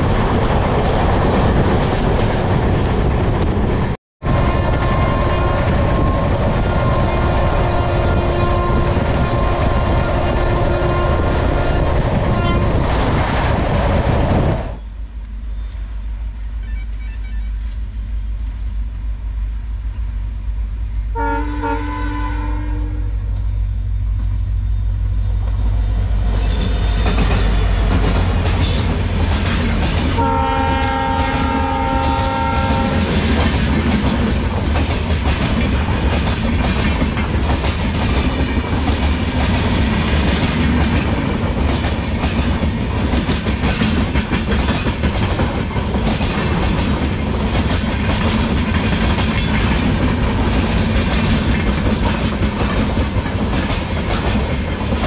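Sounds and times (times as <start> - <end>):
locomotive horn: 4.2 - 12.8, 16.5 - 17.7, 21.1 - 23.3, 30.2 - 33.1
train wheels clattering: 24.1 - 55.0.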